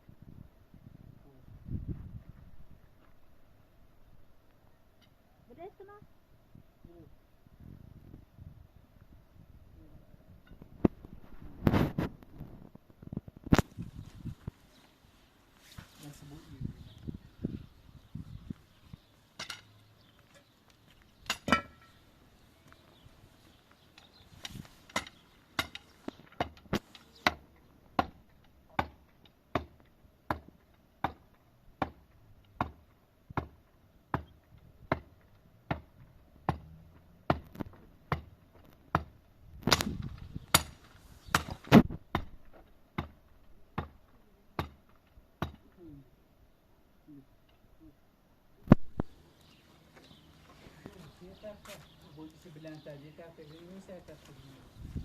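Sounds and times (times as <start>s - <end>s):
hand tool striking wood: 21.2s - 22.0s, 24.4s - 27.4s, 28.0s - 32.0s, 32.6s - 36.7s, 37.3s - 43.2s, 44.6s - 45.7s.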